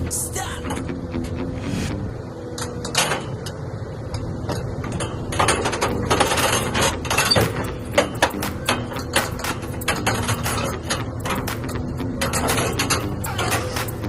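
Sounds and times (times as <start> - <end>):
excavator engine rumble: 0.0 - 14.0
metal clanks and knocks: 2.5 - 14.0.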